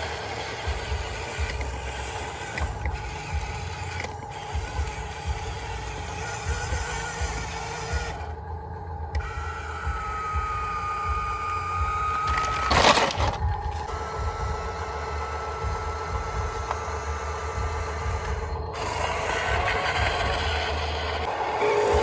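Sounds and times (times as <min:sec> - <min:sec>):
electric motors whining: 0:00.0 - 0:22.0
low rumble: 0:00.0 - 0:22.0
loud scraping rush: 0:18.8 - 0:22.0.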